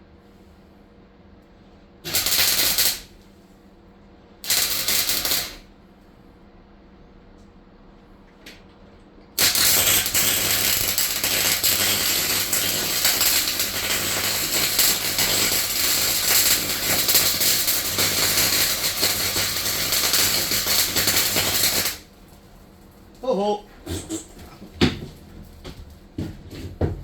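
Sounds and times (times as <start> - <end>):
welding arc crackling: 2.0 - 3.2, 4.4 - 5.7, 9.4 - 22.9.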